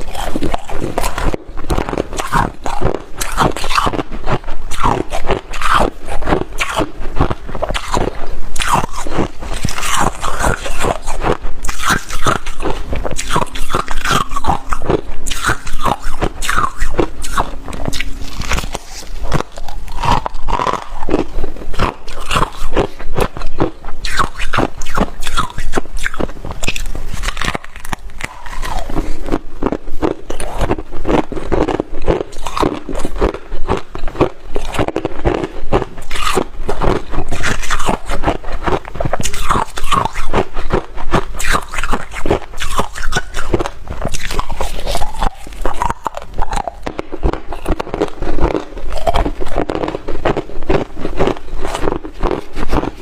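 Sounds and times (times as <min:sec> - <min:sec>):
crunching and chewing ice: 0:00.0 - 0:53.0.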